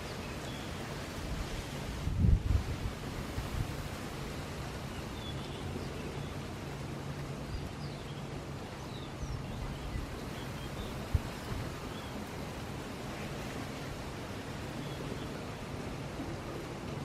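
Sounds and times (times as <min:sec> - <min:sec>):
surf: 0:00.0 - 0:17.0
wind: 0:00.0 - 0:17.0.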